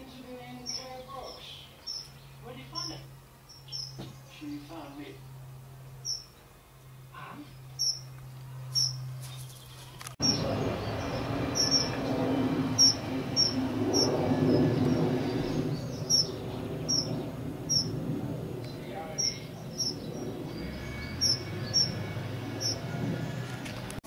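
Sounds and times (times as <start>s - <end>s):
small bird chirping: 0.5s - 4.4s, 6.0s - 6.5s, 7.5s - 12.1s, 12.7s - 18.0s, 18.7s - 22.9s
steady rushing noise: 10.0s - 24.0s.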